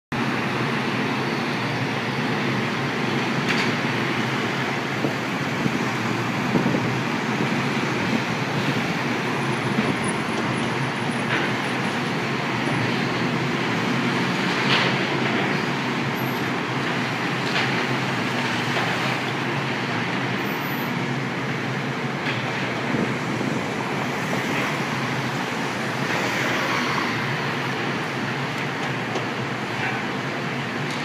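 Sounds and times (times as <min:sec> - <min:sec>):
heavy construction machinery running: 0:00.1 - 0:31.0.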